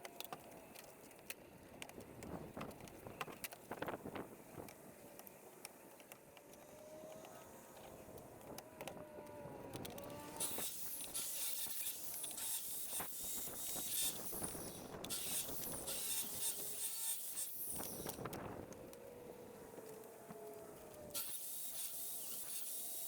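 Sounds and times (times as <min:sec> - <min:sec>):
saw cutting through wood: 0:10.0 - 0:18.3, 0:19.4 - 0:23.0.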